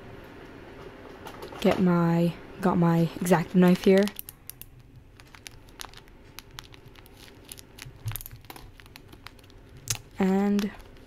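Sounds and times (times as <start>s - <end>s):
packaging crinkling: 3.4s - 11.0s.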